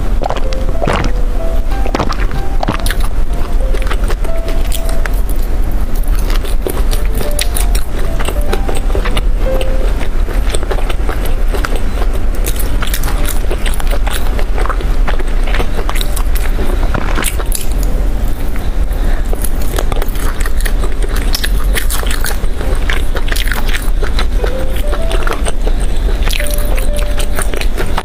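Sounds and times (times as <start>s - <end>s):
crisp crunching while chewing: 0.0s - 28.0s
steady low hum: 0.0s - 28.0s
wet mouth clicks: 0.2s - 1.2s.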